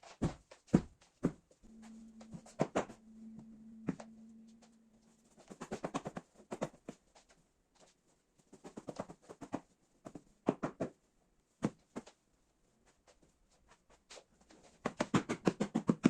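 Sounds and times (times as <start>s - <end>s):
steady low hum: 1.6s - 5.6s.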